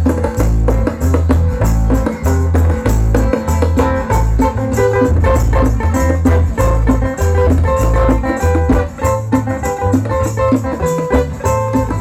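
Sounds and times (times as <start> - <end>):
bass: 0.0 - 12.0
shaker rhythm: 0.0 - 12.0
sustained melody notes: 3.0 - 10.0.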